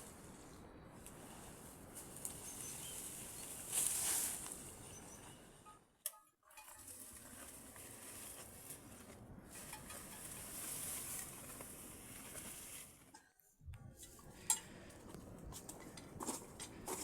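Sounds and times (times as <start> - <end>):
light clicks and clinks: 13.1 - 17.0.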